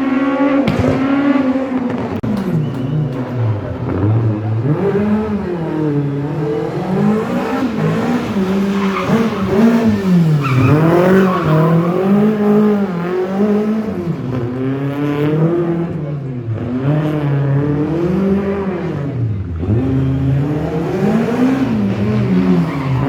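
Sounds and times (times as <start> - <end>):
rally car engine revving: 0.0 - 23.0
tyres squealing: 6.4 - 12.4, 21.0 - 23.0.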